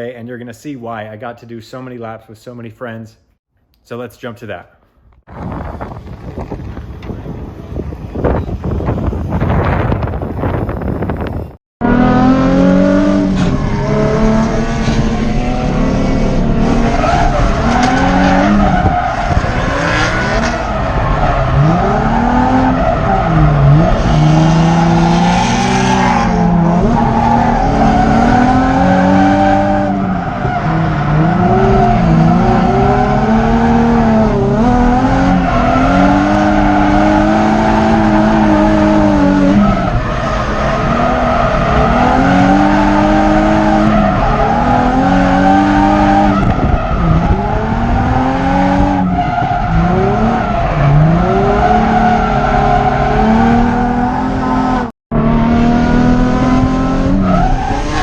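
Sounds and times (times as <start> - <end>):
car engine revving hard: 11.8 - 58.0.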